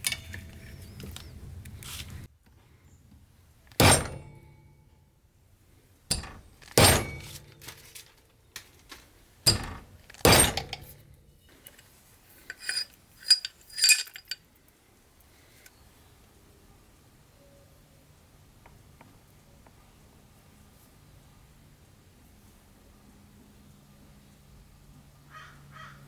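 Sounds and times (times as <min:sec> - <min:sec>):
metal parts clunking: 0:00.0 - 0:01.3, 0:03.7 - 0:04.5, 0:06.1 - 0:11.0, 0:12.4 - 0:14.4
ringing metal clinks: 0:06.1 - 0:07.5, 0:09.5 - 0:10.9, 0:12.5 - 0:14.4.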